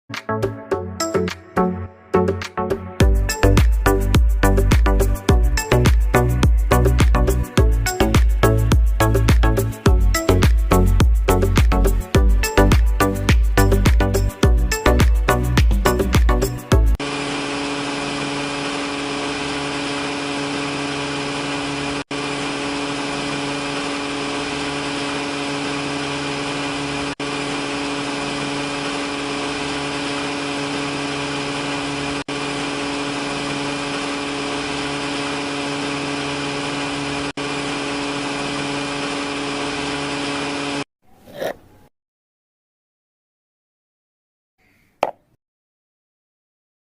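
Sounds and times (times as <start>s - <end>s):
small motor drone: 17.0s - 40.8s.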